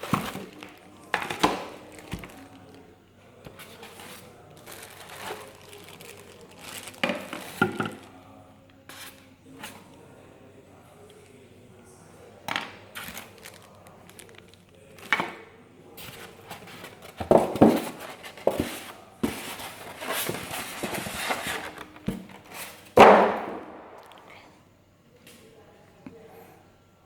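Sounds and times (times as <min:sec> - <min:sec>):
hard objects knocking and clattering: 0:00.0 - 0:02.5, 0:06.7 - 0:08.1, 0:16.5 - 0:24.2
rustling: 0:03.4 - 0:08.2, 0:16.0 - 0:23.0.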